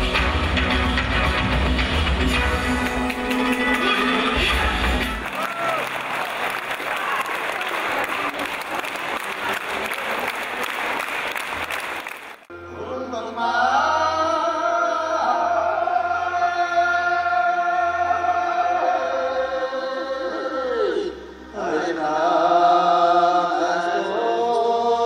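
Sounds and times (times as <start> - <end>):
applause: 5.0 - 12.5
throat singing with low drone: 12.6 - 25.0.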